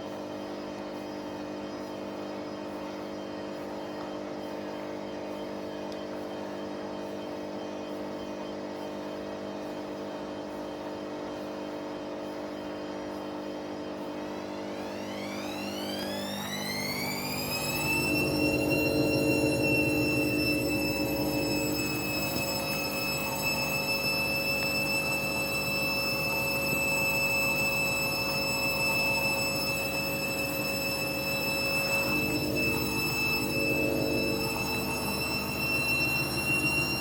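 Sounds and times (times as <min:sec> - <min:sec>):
washing machine spinning: 0:13.6 - 0:37.0
rising motor whine: 0:13.8 - 0:37.0.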